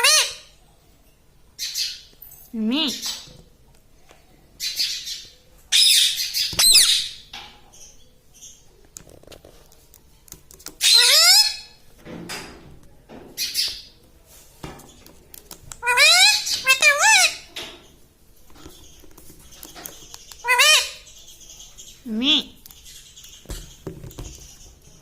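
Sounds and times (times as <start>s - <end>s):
parakeet squawking: 0.0s - 0.5s, 5.7s - 7.3s, 10.8s - 11.8s, 15.8s - 17.5s, 20.4s - 21.2s.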